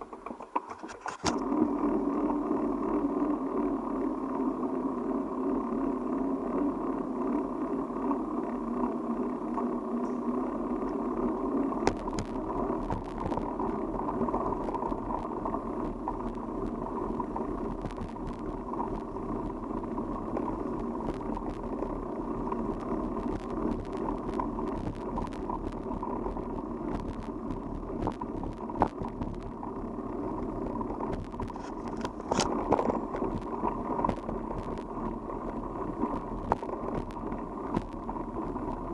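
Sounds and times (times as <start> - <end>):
bicycle clicks and rattles: 0.1 - 2.7, 6.6 - 38.9
bicycle tyre and wind noise: 0.9 - 38.9.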